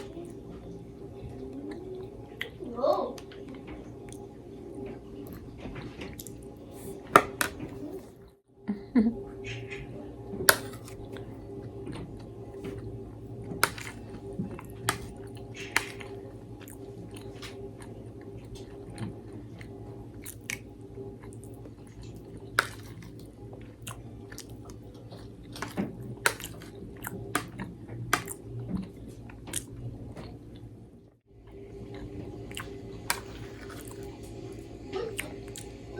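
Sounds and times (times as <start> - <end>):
steady low hum: 0.0 - 35.9
chewing with mouth clicks: 13.7 - 30.4, 31.9 - 34.4.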